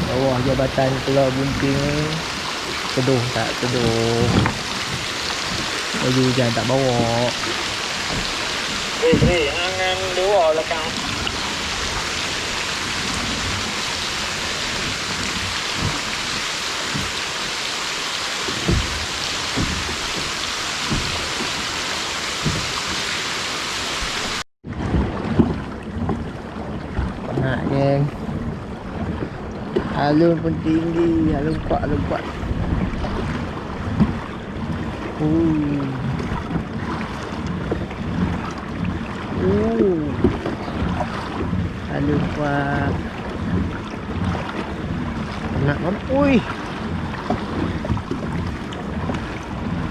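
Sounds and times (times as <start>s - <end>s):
wind buffeting microphone: 0.0s - 17.6s, 24.6s - 49.9s
heavy rain falling: 0.0s - 24.4s
waves washing against kayak: 0.0s - 49.9s
dull thuds of drops: 3.8s - 5.7s, 18.5s - 21.7s.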